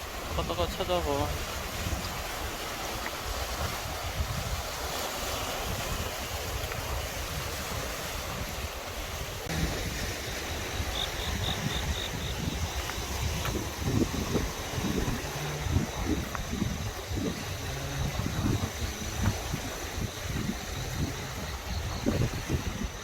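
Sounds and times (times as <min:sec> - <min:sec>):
surf on a beach: 0:00.0 - 0:23.0
wind buffeting microphone: 0:00.0 - 0:23.0.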